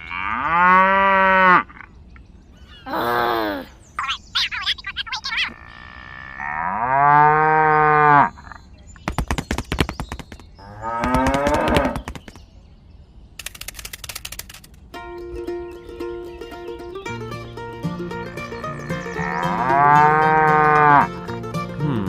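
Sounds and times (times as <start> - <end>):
rapid clicking: 9.1 - 12.4, 13.4 - 14.8
cattle mooing: 18.4 - 21.1.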